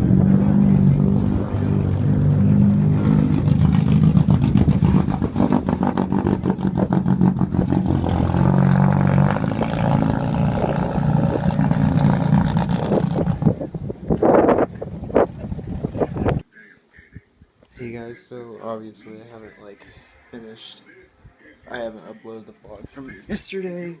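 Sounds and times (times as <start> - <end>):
car engine low exhaust note: 0.0 - 14.0.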